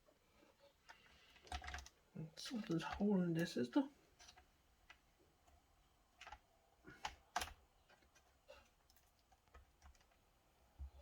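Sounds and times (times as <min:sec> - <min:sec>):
plastic parts clicking: 0:00.9 - 0:03.5, 0:06.2 - 0:10.2.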